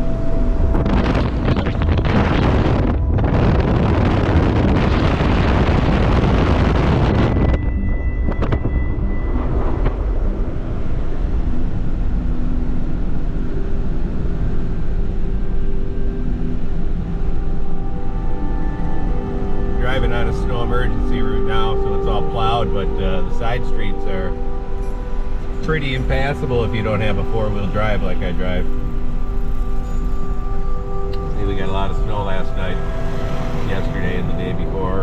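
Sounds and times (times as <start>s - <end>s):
loud wind-like rushing: 0.0s - 14.3s
low road rumble in car cabin: 0.0s - 35.0s.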